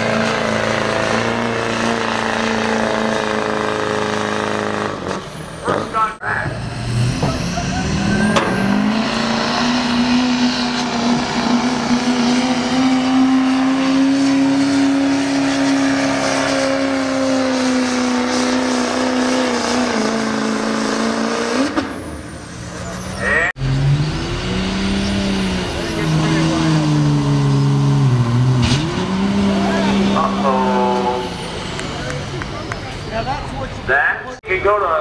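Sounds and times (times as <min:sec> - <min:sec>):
diesel truck engine revving: 0:00.0 - 0:35.0.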